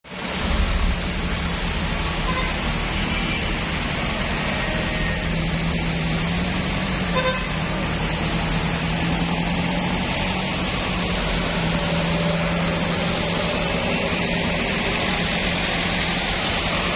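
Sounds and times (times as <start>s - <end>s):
traffic engines rumbling: 0.0s - 16.9s
car horn beep: 2.2s - 3.6s, 7.1s - 7.8s.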